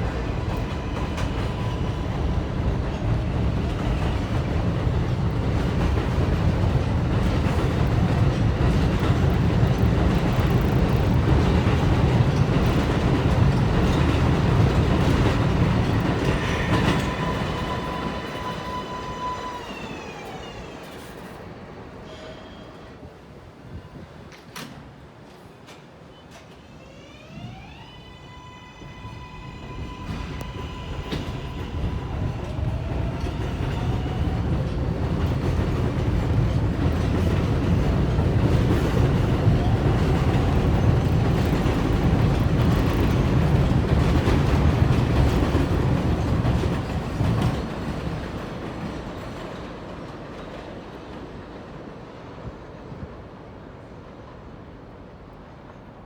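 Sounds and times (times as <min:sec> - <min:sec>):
wheels rumbling and clacking on track: 0:00.0 - 0:18.4, 0:30.0 - 0:51.6
subway train propulsion whine: 0:00.0 - 0:56.0.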